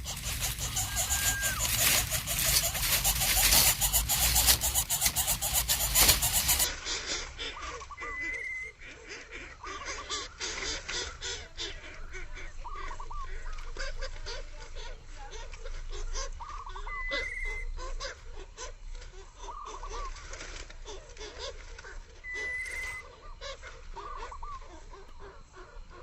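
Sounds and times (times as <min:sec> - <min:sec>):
bird chatter and clicking: 0:00.0 - 0:06.7
high bird trills: 0:00.0 - 0:06.7
honk-like bird calls: 0:00.0 - 0:14.5.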